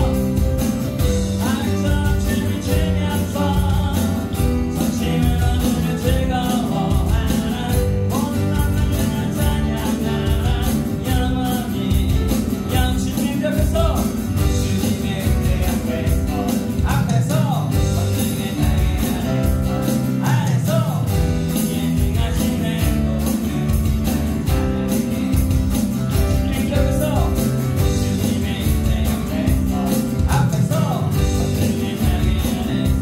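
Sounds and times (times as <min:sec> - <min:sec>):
live worship band playing: 0:00.0 - 0:33.0
person singing: 0:00.0 - 0:33.0.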